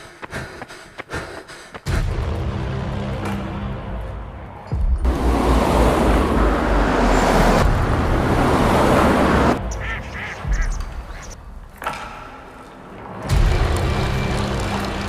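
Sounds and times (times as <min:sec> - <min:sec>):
loud rushing noise: 0:05.0 - 0:09.6.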